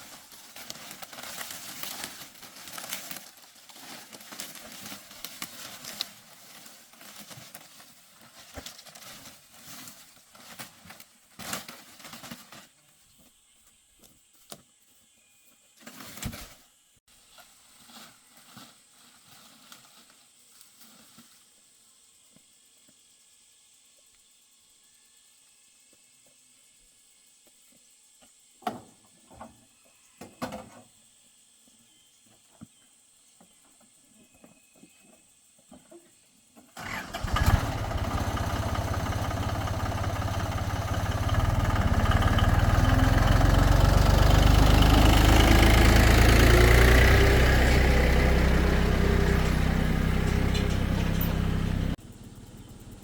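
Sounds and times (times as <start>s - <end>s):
tractor engine running: 36.8s - 53.0s.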